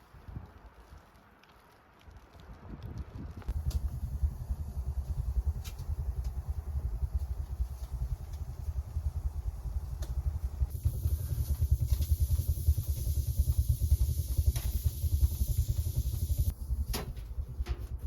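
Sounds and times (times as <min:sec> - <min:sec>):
wind buffeting microphone: 0:02.3 - 0:13.3
high hiss: 0:03.5 - 0:16.5.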